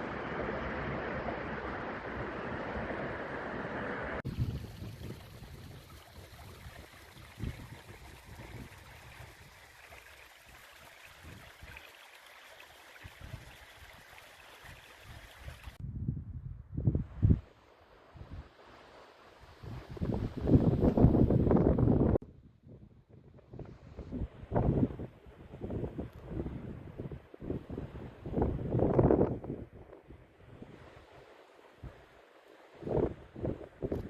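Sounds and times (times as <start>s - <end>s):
wind buffeting microphone: 4.2s - 9.9s, 13.0s - 18.7s, 19.5s - 31.2s, 32.7s - 34.0s.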